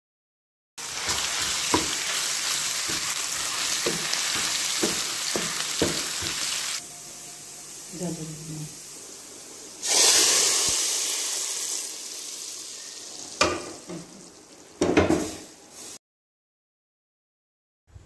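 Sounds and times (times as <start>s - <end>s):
paste sizzling in hot oil: 0.8s - 13.4s.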